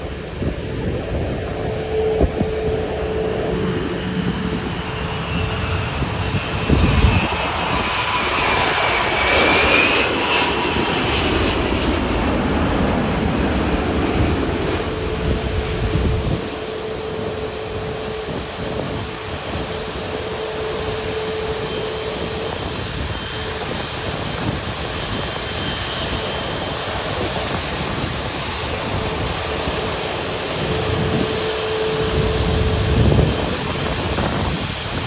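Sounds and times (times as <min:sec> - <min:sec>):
steady hum: 0:00.0 - 0:07.2
low rumble: 0:00.0 - 0:09.3
jet engines roaring: 0:00.0 - 0:35.0.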